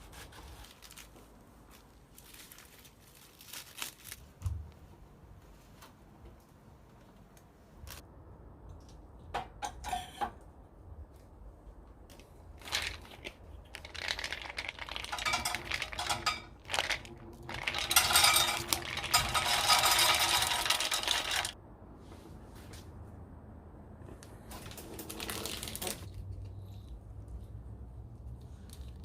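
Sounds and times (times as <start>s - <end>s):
small hard objects rattling: 12.6s - 21.6s, 25.0s - 26.1s.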